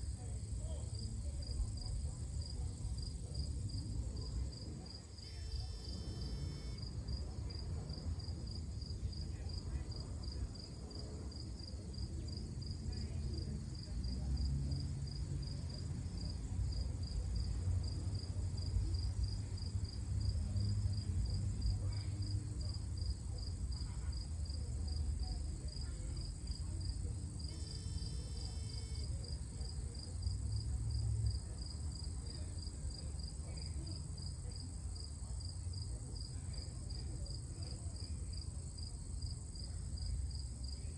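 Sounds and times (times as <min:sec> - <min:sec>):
insect chirping: 0:05.2 - 0:06.8, 0:25.7 - 0:29.1.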